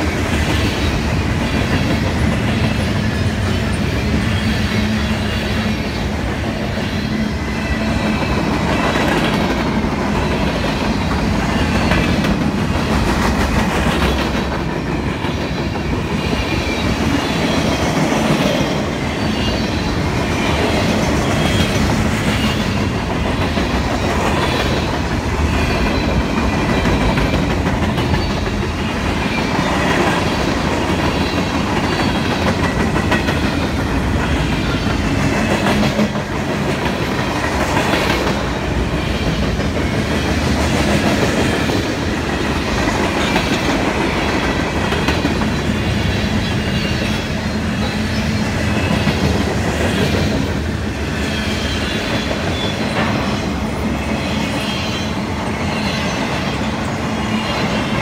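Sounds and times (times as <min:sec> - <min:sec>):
steel wheels running on rail: 0:00.0 - 0:58.0
wheels clacking over rail joints: 0:07.8 - 0:53.6.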